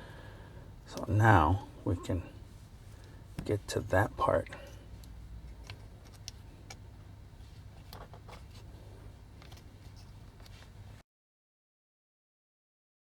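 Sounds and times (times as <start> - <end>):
low steady hum: 0.0 - 11.0
plastic toy parts clicking: 5.0 - 6.8.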